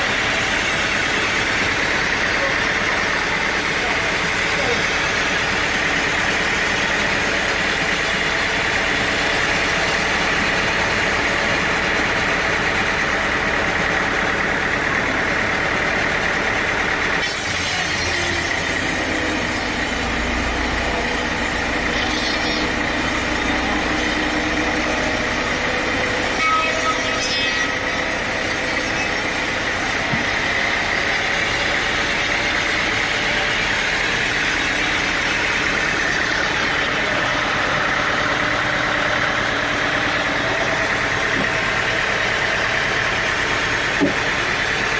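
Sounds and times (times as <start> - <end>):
sawmill engine drone: 0.0 - 44.9
saw cutting wood hiss: 17.2 - 30.0.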